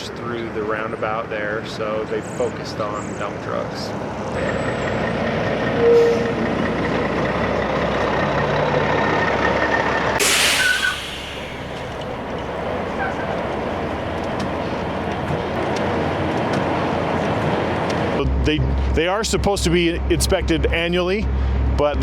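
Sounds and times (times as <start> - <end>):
heavy truck engine running: 4.4 - 15.8
brief squeak: 5.8 - 6.4, 10.2 - 15.5
air brakes hiss: 10.2 - 15.6.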